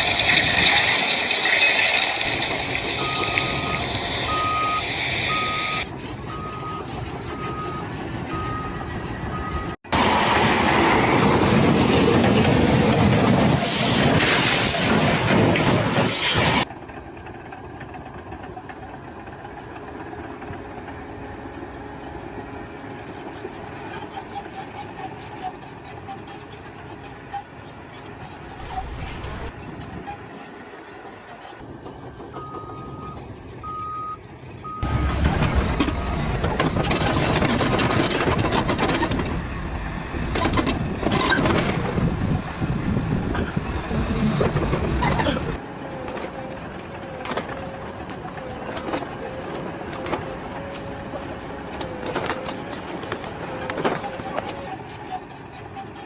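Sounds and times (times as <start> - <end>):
engine and machinery noise: 0.0 - 56.0
reversing alarm beeping: 3.0 - 9.8, 32.3 - 35.1, 45.6 - 55.2
loud rushing noise: 28.6 - 29.7.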